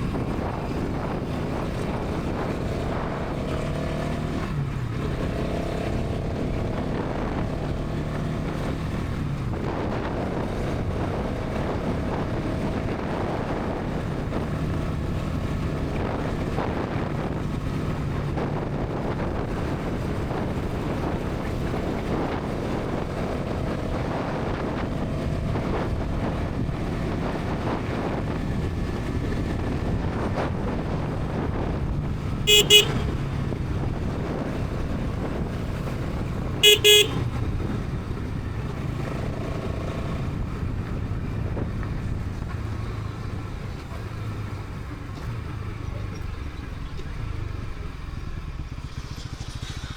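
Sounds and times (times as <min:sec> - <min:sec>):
motorcycle engine cruising: 0:00.0 - 0:49.9
wind and road noise: 0:00.0 - 0:49.9
horn beeps: 0:32.5 - 0:33.4, 0:36.6 - 0:37.4.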